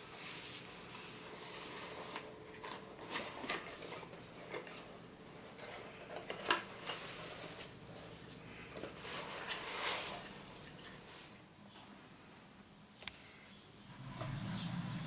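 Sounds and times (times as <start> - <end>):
rustling and scraping: 0.0 - 11.4.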